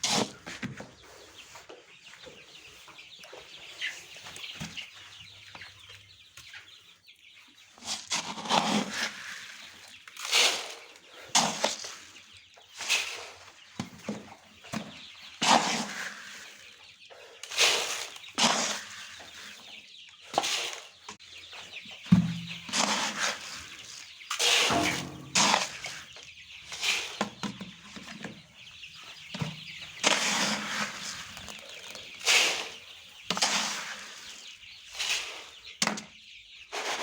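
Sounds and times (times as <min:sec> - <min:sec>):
chickens clucking: 0:00.0 - 0:37.0.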